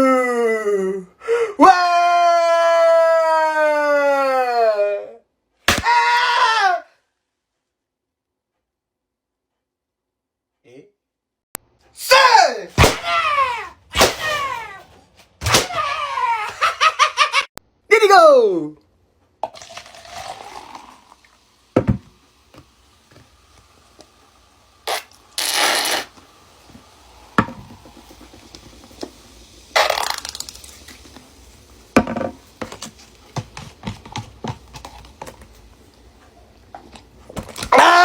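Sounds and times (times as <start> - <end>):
crinkling crushing noise: 29.8 - 31.3, 32.3 - 37.8.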